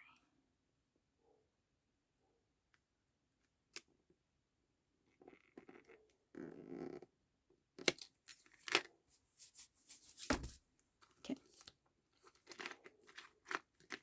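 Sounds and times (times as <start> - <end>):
paper and card rustling: 8.3 - 10.6.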